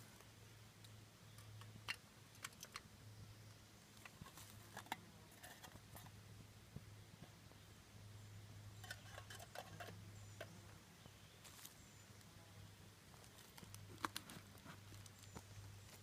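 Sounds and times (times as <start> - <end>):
camping cook gear clicking: 1.4 - 2.9, 13.4 - 15.5.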